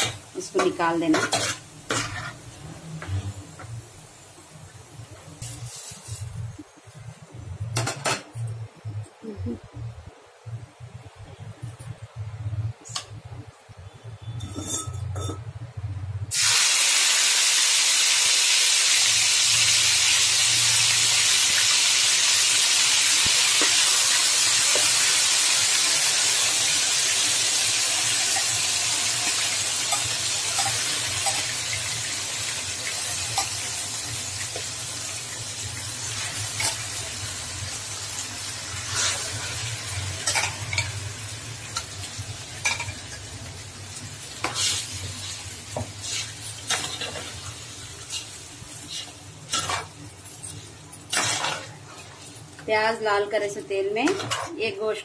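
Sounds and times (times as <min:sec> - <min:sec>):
chicken sizzling in hot oil: 0:05.4 - 0:06.5, 0:16.3 - 0:52.9
spoon clinking and scraping: 0:14.2 - 0:15.4.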